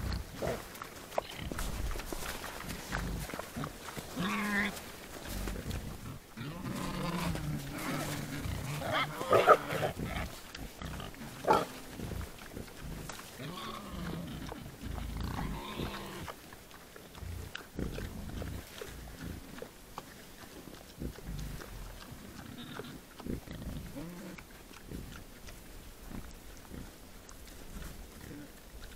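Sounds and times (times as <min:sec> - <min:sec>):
wild boar grunting: 0:00.0 - 0:28.9
wild boar sharp calls: 0:01.2 - 0:16.3.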